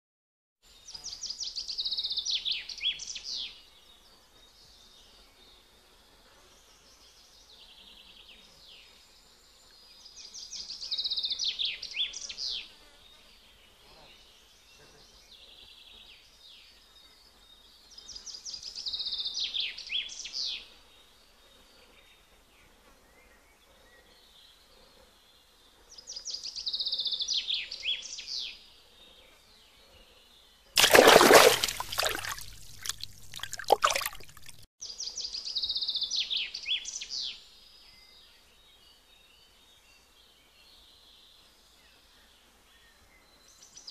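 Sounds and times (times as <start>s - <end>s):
songbird singing: 0.7s - 5.7s, 6.6s - 43.9s
outdoor ambience hiss: 0.7s - 43.9s
distant birdsong: 30.8s - 39.4s.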